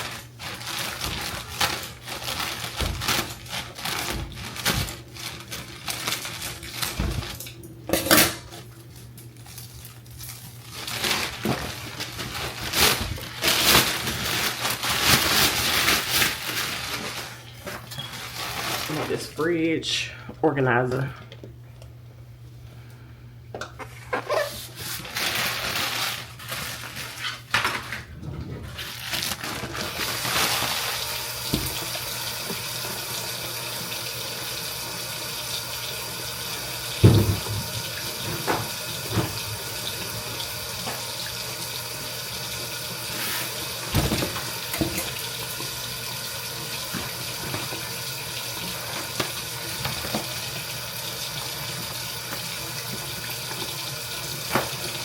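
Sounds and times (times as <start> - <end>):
tap running into sink: 31.4 - 32.7, 37.0 - 39.5.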